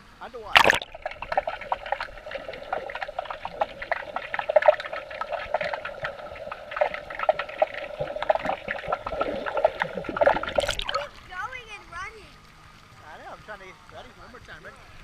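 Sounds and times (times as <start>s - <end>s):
muffled underwater bubbling: 0.5s - 11.4s.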